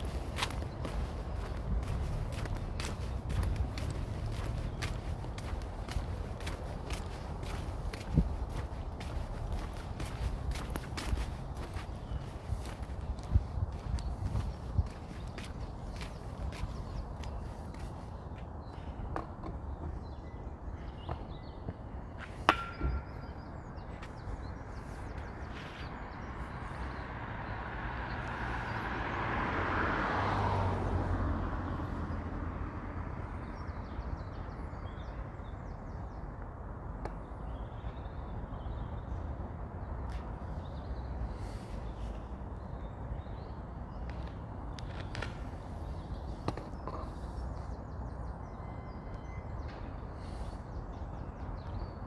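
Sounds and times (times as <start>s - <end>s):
vehicle passing by: 0.0s - 17.9s, 25.6s - 33.8s
birds chirping: 0.0s - 28.6s.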